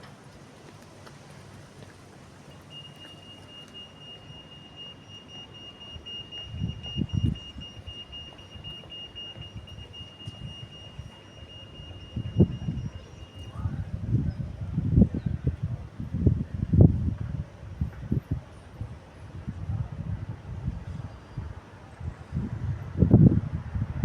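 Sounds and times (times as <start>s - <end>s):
level crossing alarm tone: 2.5s - 14.1s.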